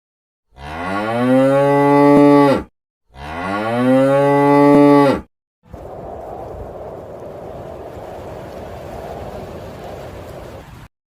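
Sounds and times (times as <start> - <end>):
cow mooing: 0.5 - 5.3.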